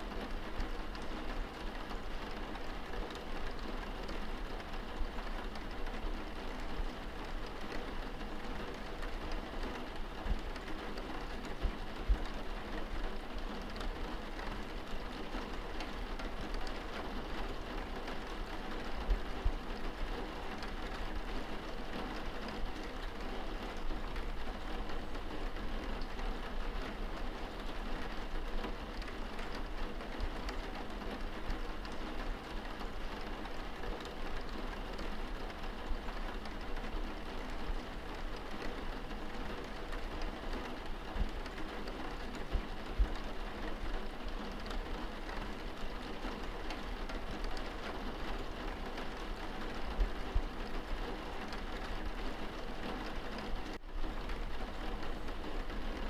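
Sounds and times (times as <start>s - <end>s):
rain on window glass: 0.0s - 56.0s.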